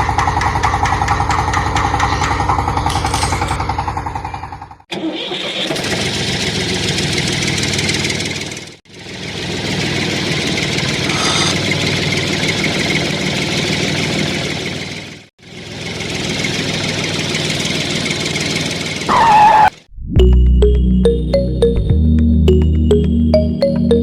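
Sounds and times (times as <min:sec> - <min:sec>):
small motor running: 0:10.8 - 0:11.9.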